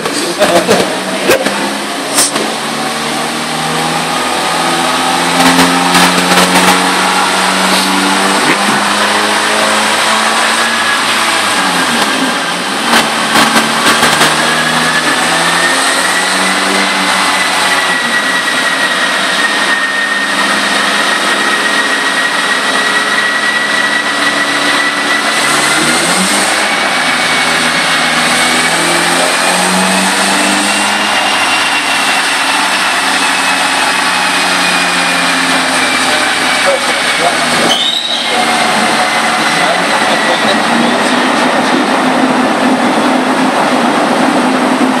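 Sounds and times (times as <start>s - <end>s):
high turbo whine: 0.0s - 45.0s
turbocharged car engine revving: 0.0s - 45.0s
sharp exhaust cracks: 11.8s - 42.0s.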